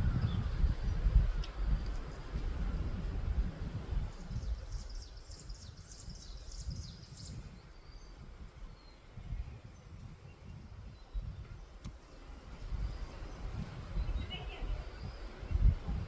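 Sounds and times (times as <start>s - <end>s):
wind noise rumble: 0.0s - 16.0s
bird chirping: 4.1s - 15.7s.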